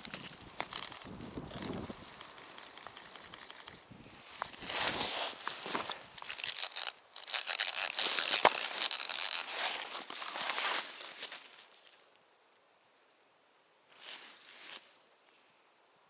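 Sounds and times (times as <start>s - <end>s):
crinkly rustling and crackling: 0.0s - 12.1s.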